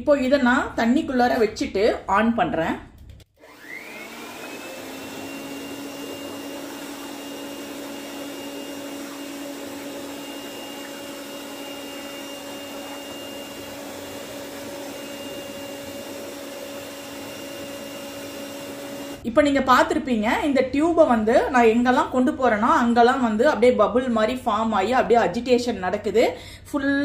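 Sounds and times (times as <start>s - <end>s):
air blower motor whine: 3.4s - 19.2s.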